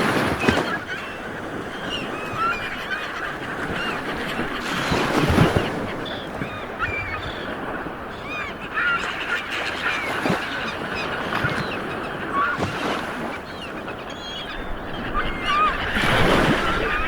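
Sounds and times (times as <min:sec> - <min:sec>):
sea waves washing on shore: 0:00.0 - 0:08.9, 0:14.6 - 0:17.0.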